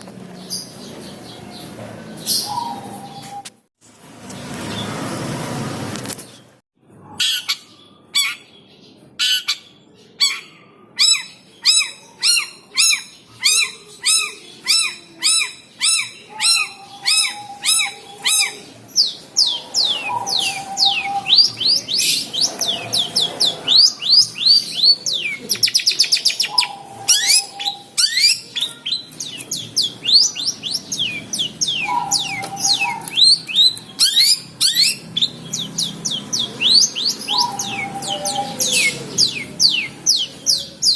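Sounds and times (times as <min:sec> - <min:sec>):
bird chattering: 0:09.2 - 0:40.9
bird rasping calls: 0:10.2 - 0:40.9.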